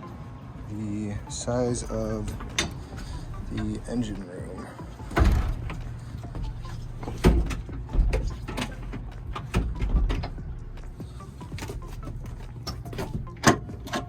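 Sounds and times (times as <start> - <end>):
knocks and thumps: 5.1 - 10.8.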